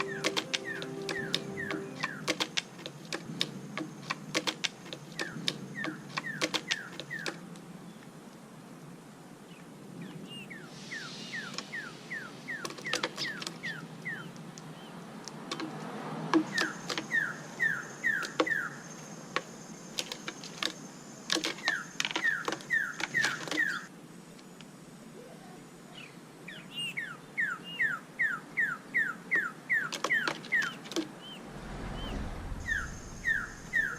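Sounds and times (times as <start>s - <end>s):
sharp clicks: 0.0s - 7.4s.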